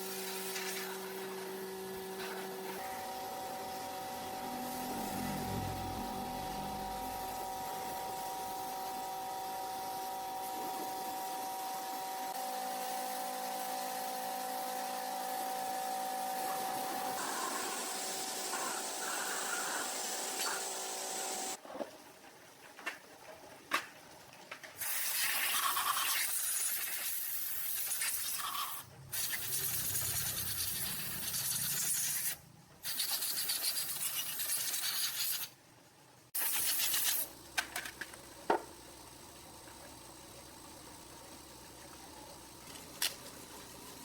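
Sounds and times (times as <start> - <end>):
hiss: 16.4 - 21.6, 24.8 - 35.6, 36.4 - 37.3.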